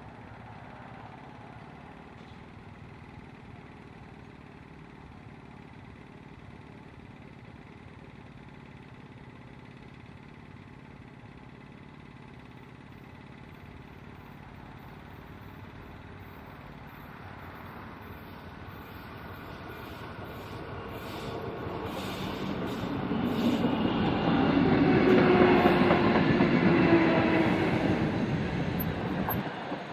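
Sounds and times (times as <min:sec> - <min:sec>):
train rumble: 0:14.0 - 0:29.9.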